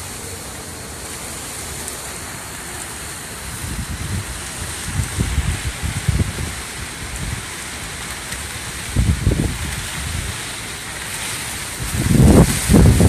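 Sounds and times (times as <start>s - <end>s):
rain hissing: 0.0s - 13.0s
wind gusts buffeting microphone: 3.1s - 13.0s.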